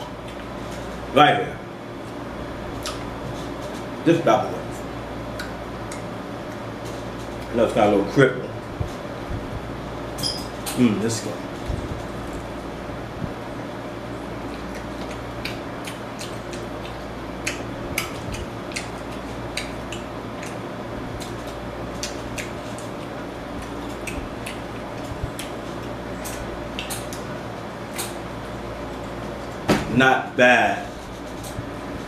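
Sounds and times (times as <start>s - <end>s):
wet chewing mouth sounds: 2.8s - 3.6s, 5.3s - 6.7s, 14.2s - 27.3s.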